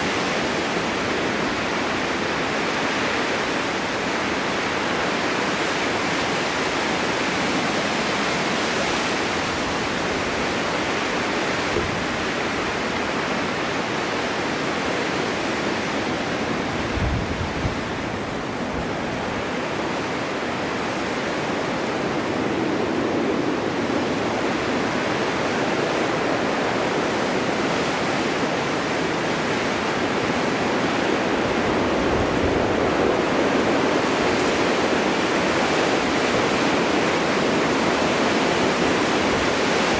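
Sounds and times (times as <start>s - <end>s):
snowstorm wind blowing: 0.0s - 39.9s
low rumbles of gusts: 16.4s - 20.8s.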